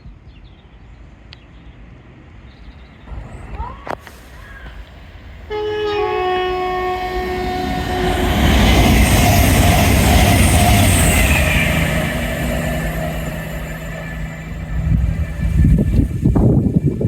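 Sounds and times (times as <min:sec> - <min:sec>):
train rushing past: 0:01.8 - 0:17.0
train two-tone horn: 0:05.4 - 0:12.4.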